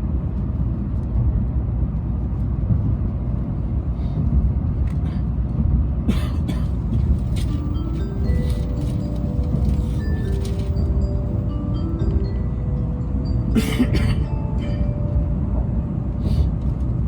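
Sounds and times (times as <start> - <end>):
train running low rumble: 0.0 - 17.0
onboard chime tones: 7.5 - 15.6.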